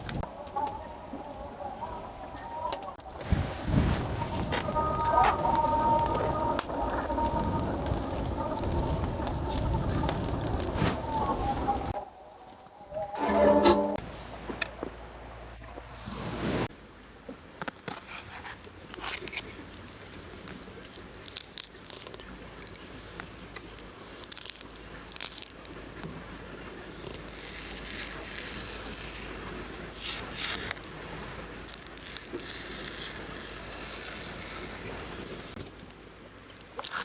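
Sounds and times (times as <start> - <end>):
crinkling: 0.0 - 12.6, 17.6 - 26.2, 26.8 - 37.0
scraping in food preparation: 13.2 - 14.0.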